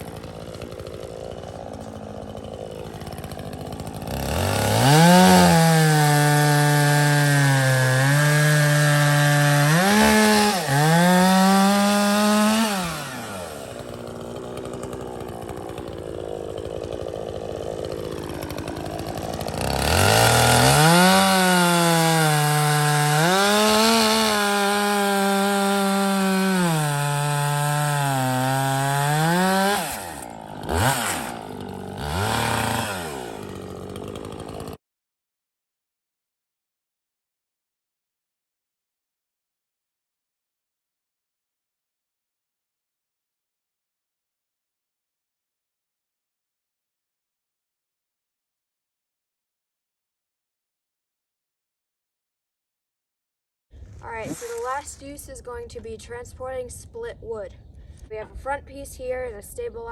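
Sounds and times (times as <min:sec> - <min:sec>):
chainsaw cutting log: 0:00.0 - 0:34.8, 0:53.8 - 0:56.8.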